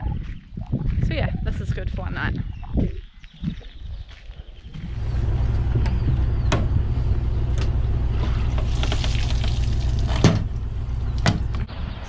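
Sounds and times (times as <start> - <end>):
vehicle engine rumbling: 4.6 - 12.0.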